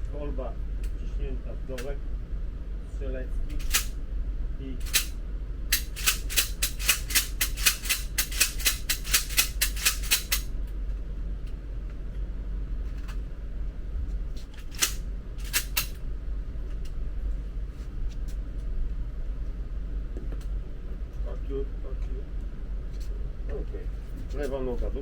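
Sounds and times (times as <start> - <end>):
low steady hum: 0.0 - 25.0
sharp clicks: 5.7 - 10.5.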